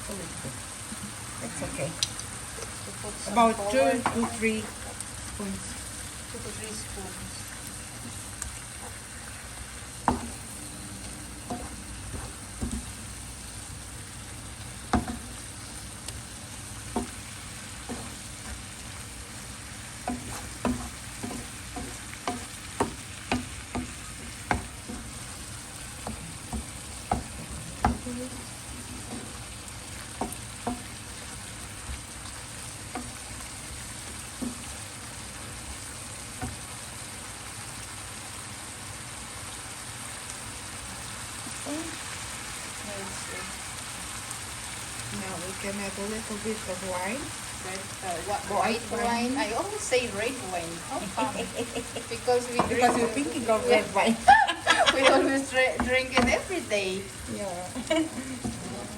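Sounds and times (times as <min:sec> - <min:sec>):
food sizzling in oil in a pan: 0:00.0 - 0:58.9
utensil knocking against pan: 0:14.9 - 0:15.3, 0:20.0 - 0:25.2, 0:55.7 - 0:56.5.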